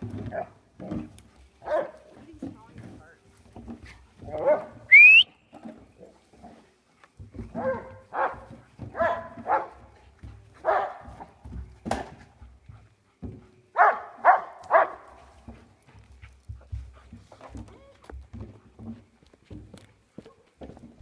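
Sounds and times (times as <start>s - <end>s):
dogs barking: 1.6s - 2.1s, 4.2s - 4.9s, 7.5s - 11.3s, 13.7s - 15.2s.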